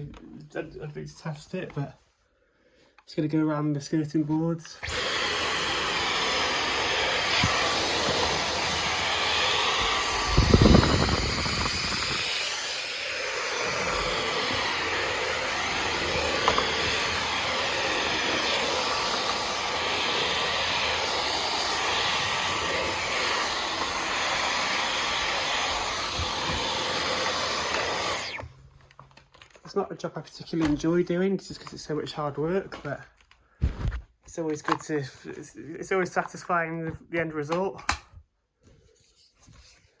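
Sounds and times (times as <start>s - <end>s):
vacuum cleaner whining: 4.6s - 28.7s.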